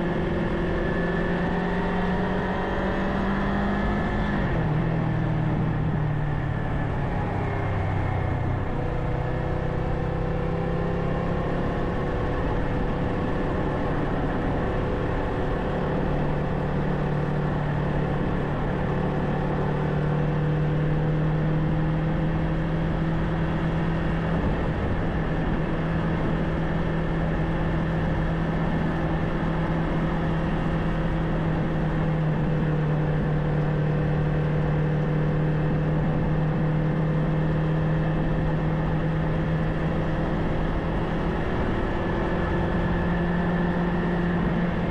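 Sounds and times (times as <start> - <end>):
motorcycle engine cruising: 0.0 - 44.9
wind noise: 22.8 - 33.4.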